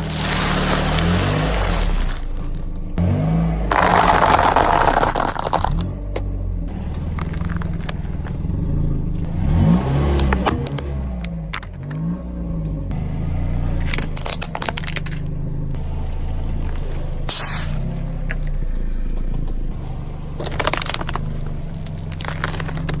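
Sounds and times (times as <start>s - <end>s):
tyres crunching objects: 0.0s - 8.4s, 13.0s - 23.0s
car engine running slowly: 0.0s - 23.0s
short loud hiss-like burst: 17.3s - 17.8s.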